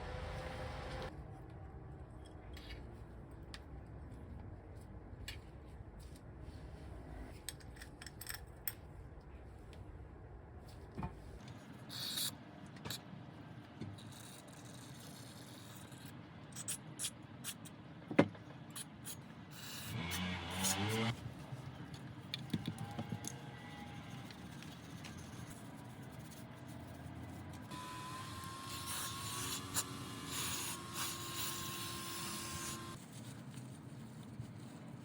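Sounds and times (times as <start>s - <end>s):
rubbing and scraping noises: 20.6s - 27.7s.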